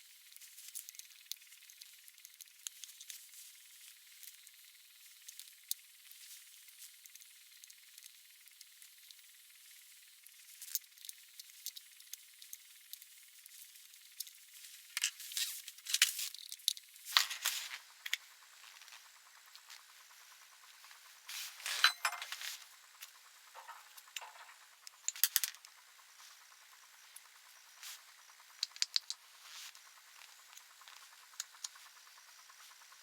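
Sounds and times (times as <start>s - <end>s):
light clicks and clinks: 21.5s - 25.7s.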